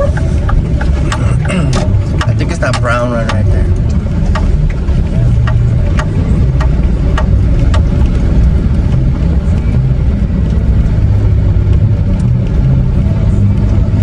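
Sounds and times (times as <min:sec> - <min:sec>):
truck engine running: 0:00.0 - 0:14.0.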